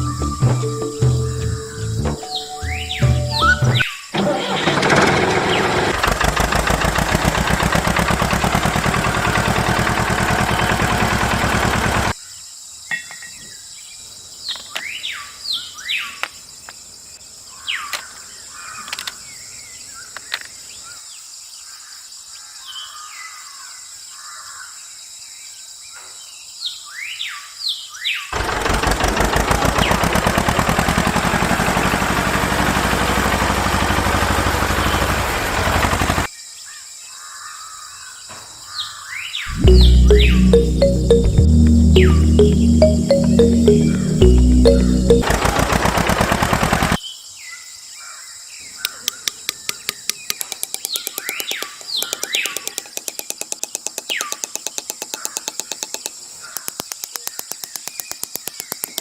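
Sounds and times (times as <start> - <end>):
loud mechanical rattle: 4.2 - 12.2, 28.4 - 36.3, 45.2 - 47.0.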